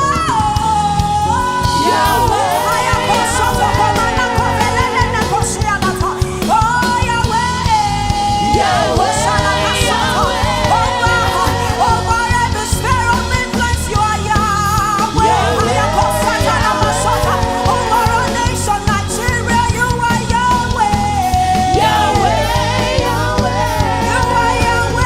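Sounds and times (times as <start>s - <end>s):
instrumental backing: 0.0s - 25.0s
person singing with vibrato: 0.0s - 25.0s.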